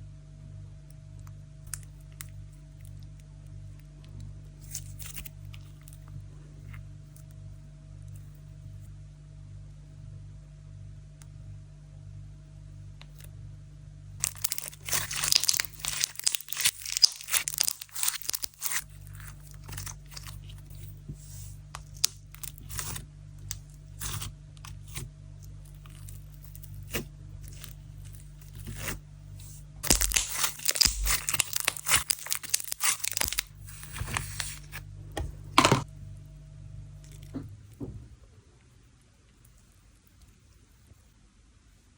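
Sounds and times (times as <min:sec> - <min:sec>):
slime crackling and popping: 0:14.2 - 0:34.7.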